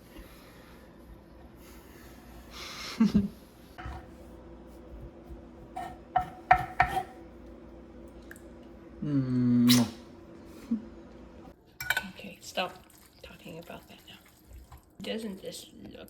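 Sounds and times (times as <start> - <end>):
utensil scraping a pan: 5.7 - 7.2
metal clinking on cookware: 11.8 - 12.2.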